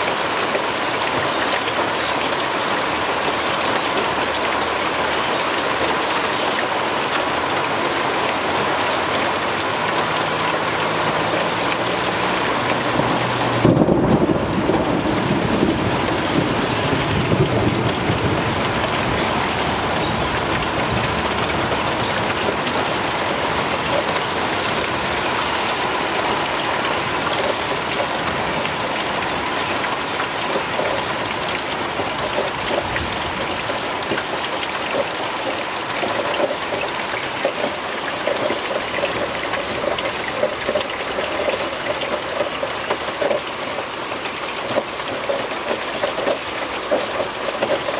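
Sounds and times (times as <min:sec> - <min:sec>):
heavy rain pouring: 0:00.0 - 0:47.9
thunder rumbling: 0:12.8 - 0:29.6.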